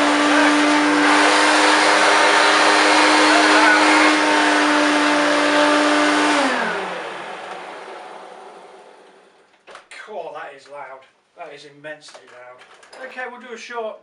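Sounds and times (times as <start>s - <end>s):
vacuum cleaner motor whine: 0.0s - 9.4s.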